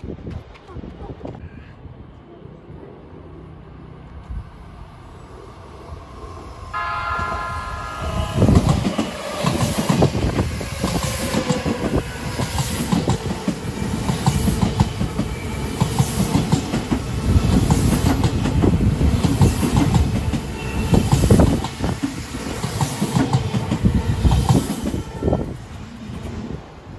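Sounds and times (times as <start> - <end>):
train rumbling: 0.0 - 26.9
train horn: 6.8 - 9.8, 24.8 - 25.6.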